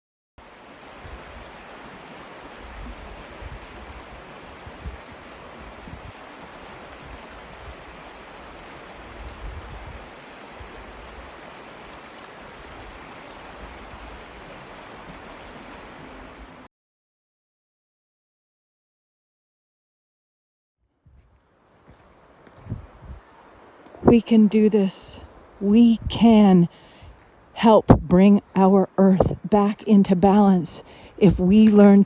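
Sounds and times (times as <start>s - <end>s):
stream water rushing: 0.4s - 16.7s, 21.4s - 32.0s
low rumbling: 22.6s - 23.2s, 23.9s - 32.0s.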